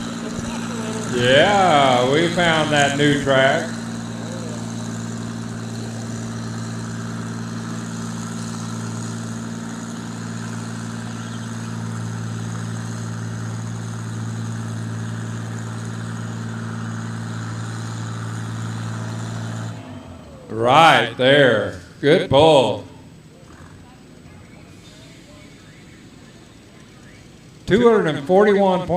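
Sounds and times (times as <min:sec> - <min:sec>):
tractor engine running under load: 0:00.0 - 0:28.9.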